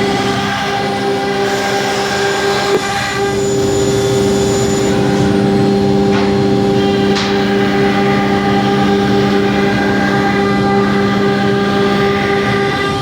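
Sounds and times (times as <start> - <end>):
router spindle whine: 0.0 - 13.0
rush of router cutting: 0.0 - 13.0.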